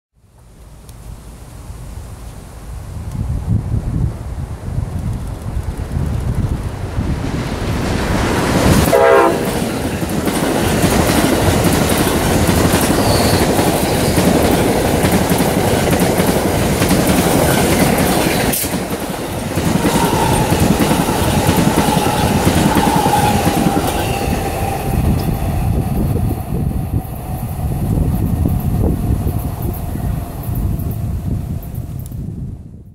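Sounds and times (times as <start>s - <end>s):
train cars rushing and clacking: 6.2s - 31.8s
train horn blast: 8.8s - 9.7s, 19.7s - 25.7s.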